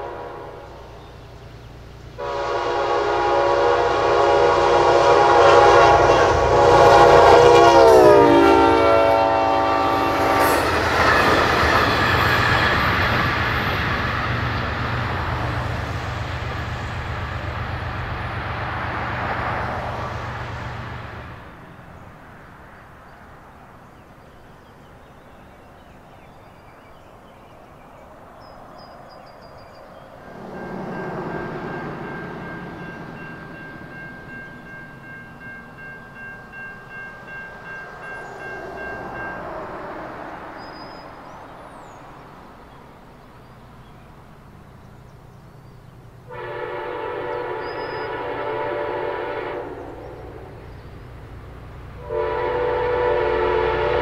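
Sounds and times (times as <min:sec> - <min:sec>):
train chord horn: 0:00.0 - 0:01.1, 0:02.2 - 0:11.2, 0:30.2 - 0:40.5, 0:46.2 - 0:50.8, 0:52.0 - 0:54.0
passing train rumble and wheels: 0:00.0 - 0:54.0.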